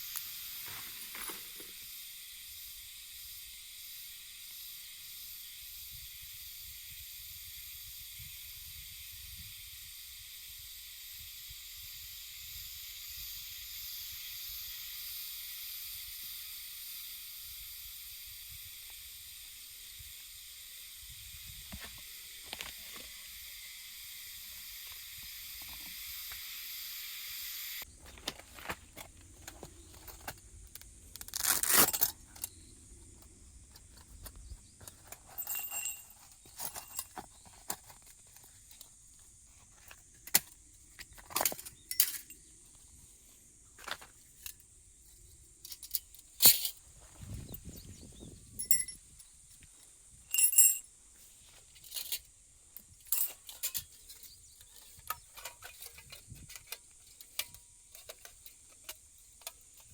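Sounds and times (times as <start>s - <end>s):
camping gear clicks and clinks: 0.0s - 2.1s, 21.7s - 23.3s, 27.8s - 59.9s
faint high hiss: 0.0s - 59.9s.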